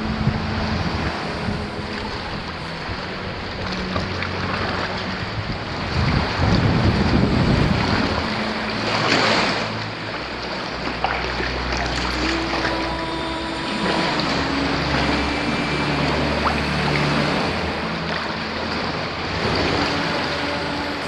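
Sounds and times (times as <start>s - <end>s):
wind on microphone: 0.0s - 10.4s
water splashing around kayak: 0.0s - 21.0s.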